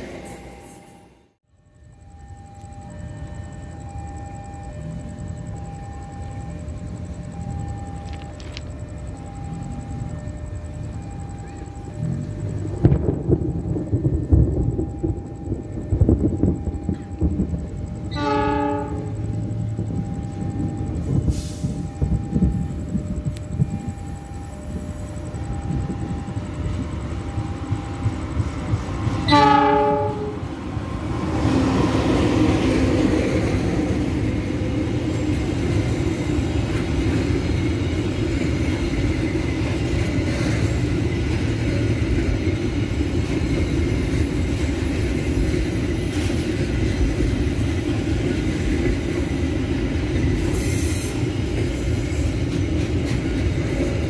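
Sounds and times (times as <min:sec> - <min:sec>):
freight wagons rumbling over rails: 0:00.0 - 0:54.0
train horn blast: 0:18.1 - 0:19.3, 0:29.2 - 0:30.6.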